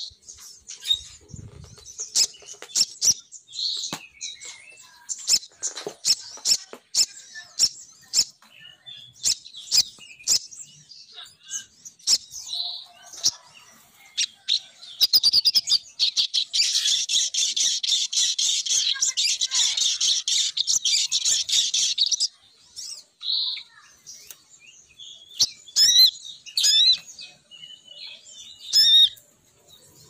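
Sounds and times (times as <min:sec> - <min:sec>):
bird chips and twitters: 0:00.0 - 0:29.2.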